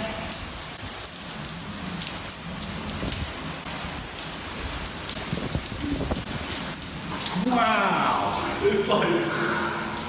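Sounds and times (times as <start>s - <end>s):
heavy rain hissing: 0.0s - 10.0s
gusty wind rumble: 4.6s - 7.0s.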